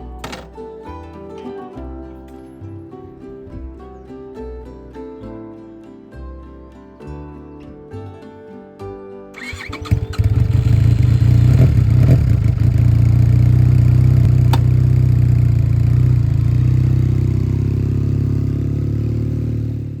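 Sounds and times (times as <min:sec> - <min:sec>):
motorcycle engine idling: 0:09.4 - 0:20.0.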